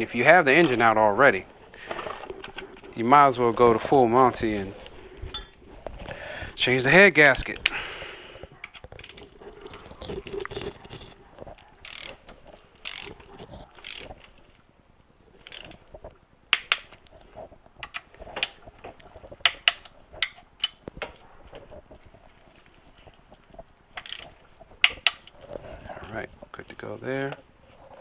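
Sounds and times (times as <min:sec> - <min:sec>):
metal engine parts clinking: 0:05.3 - 0:05.7
sharp clicks: 0:16.5 - 0:17.1.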